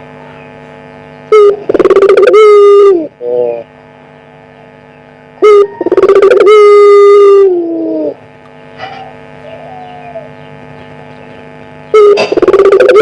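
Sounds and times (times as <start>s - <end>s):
steady hum: 0.0s - 13.0s
dove cooing: 1.4s - 3.6s, 5.4s - 8.2s, 8.8s - 13.0s.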